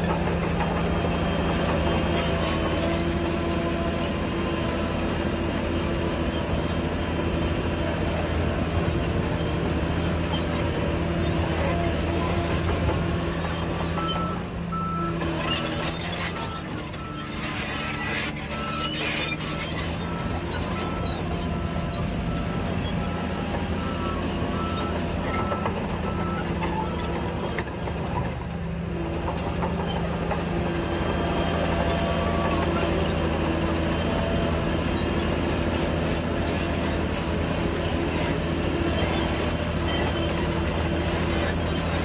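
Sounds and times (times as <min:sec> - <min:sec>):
diesel earthmoving machinery running: 0:00.0 - 0:42.0
reversing alarm beeping: 0:13.6 - 0:27.7.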